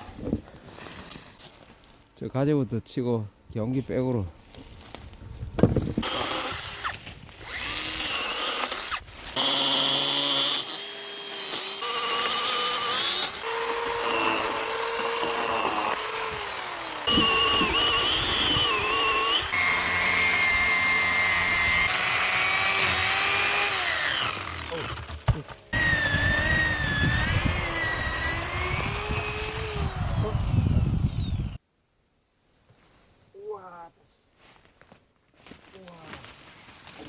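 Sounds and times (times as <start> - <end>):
electric chainsaw cutting wood: 6.0 - 31.6.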